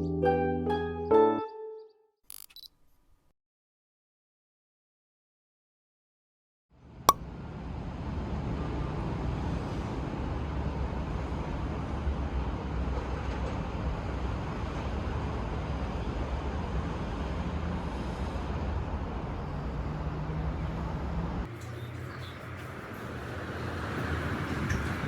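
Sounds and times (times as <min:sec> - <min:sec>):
road noise: 0:07.3 - 0:25.0.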